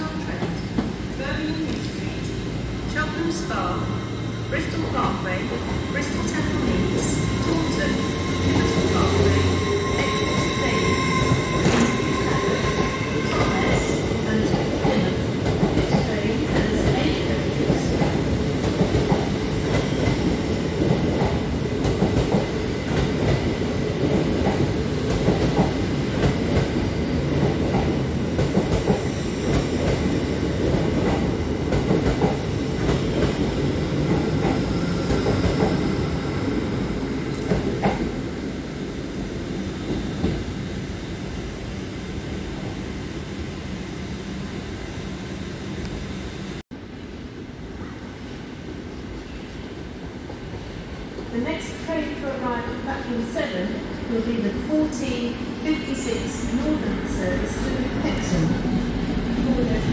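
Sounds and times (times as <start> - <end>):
train wheels rumbling on rail: 0.0 - 38.5.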